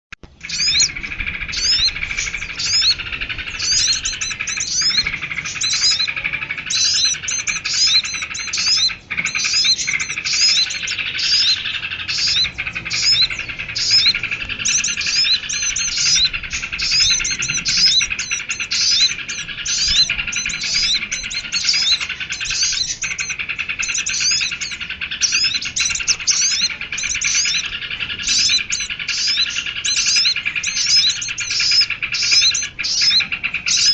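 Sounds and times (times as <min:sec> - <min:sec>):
low bird chatter: 0:00.2 - 0:33.9
songbirds chirping: 0:00.2 - 0:33.9.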